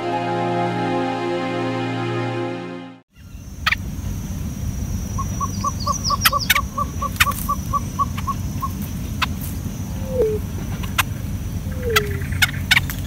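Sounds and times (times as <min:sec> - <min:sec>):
steady low rumble: 0:03.3 - 0:13.0
high chirps: 0:05.1 - 0:13.0.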